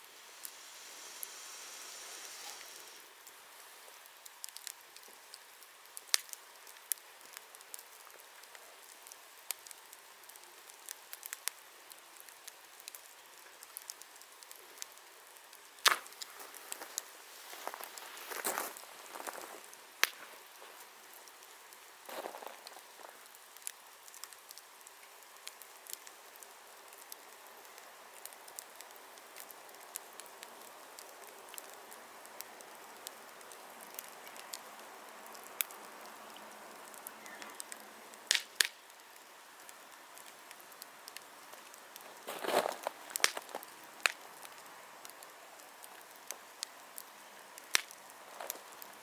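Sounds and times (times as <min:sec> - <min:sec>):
faint hiss of burning: 0:00.0 - 0:49.0
wood fire crackling: 0:00.0 - 0:49.0.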